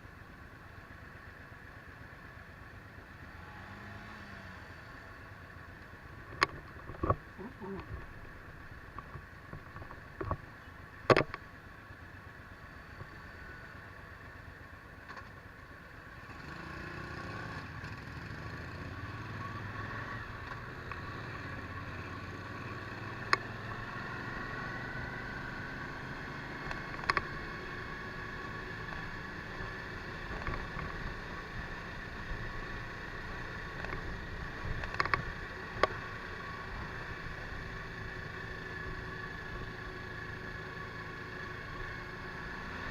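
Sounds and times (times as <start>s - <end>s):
motorcycle engine running: 0.1s - 42.9s
sharp clicks or knocks: 11.0s - 11.4s.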